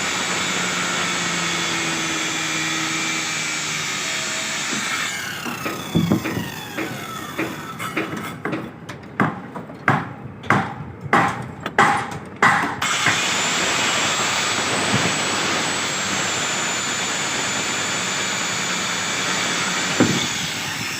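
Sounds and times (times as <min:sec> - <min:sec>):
power cutting tool running: 0:00.0 - 0:07.5, 0:12.8 - 0:20.9.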